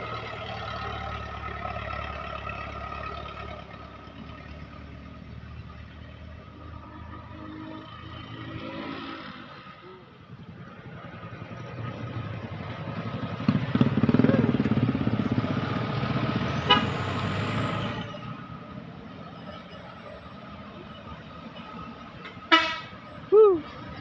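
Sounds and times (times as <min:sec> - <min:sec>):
truck engine passing: 0:00.0 - 0:24.0
vehicle horn toot: 0:16.7 - 0:17.0, 0:22.4 - 0:23.0.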